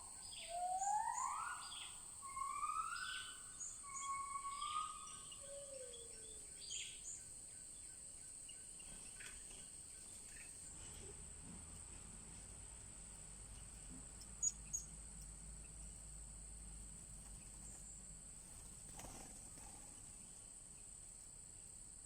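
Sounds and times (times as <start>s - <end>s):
bird whistles: 0.0s - 6.0s
insects droning: 0.0s - 22.0s
high bird chirps: 0.2s - 5.4s.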